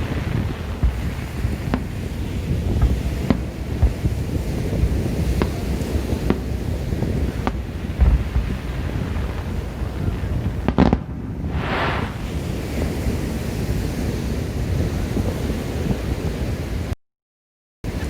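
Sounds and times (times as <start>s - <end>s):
firework bang: 0.0s - 12.9s
surf: 0.0s - 16.9s
wind noise on microphone: 0.0s - 17.0s
short hiss: 11.6s - 12.2s.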